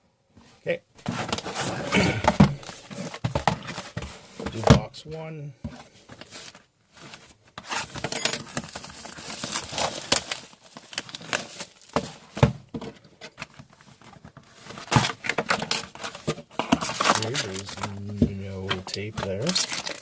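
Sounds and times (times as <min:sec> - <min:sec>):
plastic wrap crinkling: 0:08.4 - 0:12.2, 0:16.8 - 0:18.1, 0:18.7 - 0:20.0.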